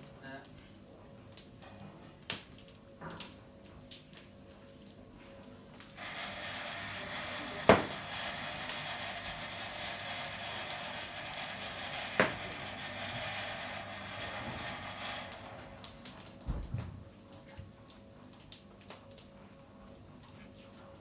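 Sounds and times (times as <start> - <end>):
sharp knocks: 6.0 - 15.7.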